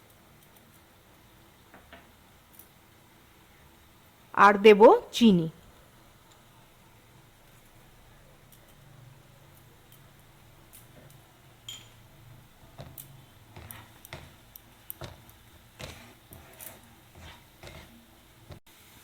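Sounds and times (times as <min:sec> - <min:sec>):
paste frying: 0:05.6 - 0:19.0
spatula scraping a pan: 0:12.7 - 0:18.6.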